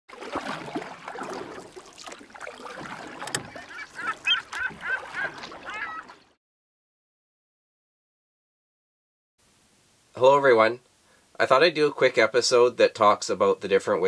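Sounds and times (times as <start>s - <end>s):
birds calling: 2.5s - 6.4s.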